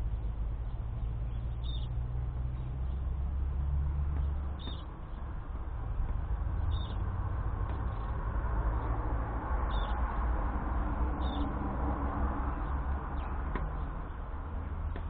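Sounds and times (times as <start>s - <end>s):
bird chirping: 0.2s - 3.2s, 4.1s - 5.4s, 6.0s - 9.0s, 9.6s - 10.3s, 11.1s - 11.6s.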